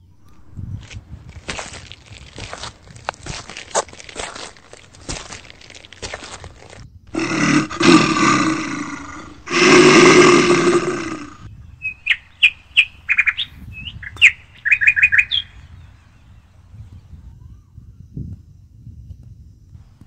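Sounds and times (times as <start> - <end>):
birds chirping: 0.0 - 17.2
long low calls: 4.3 - 11.5.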